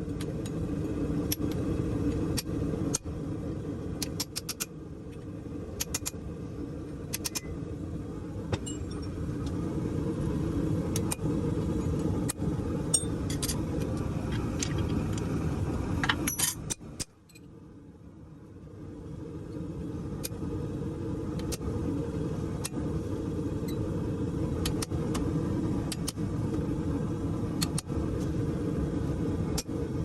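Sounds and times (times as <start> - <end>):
forge roaring: 9.1 - 16.2
tools clinking on metal: 16.1 - 17.4.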